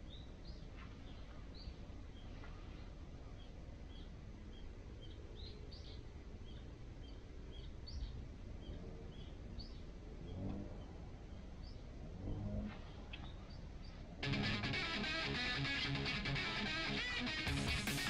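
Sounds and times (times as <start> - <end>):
low outdoor rumble: 0.0 - 18.0
small birds chirping: 0.0 - 18.0.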